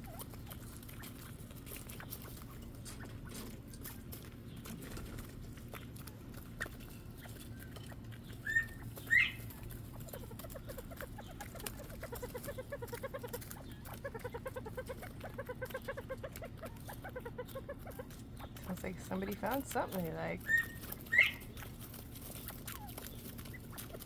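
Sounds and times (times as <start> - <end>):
quail calling: 6.6 - 24.0.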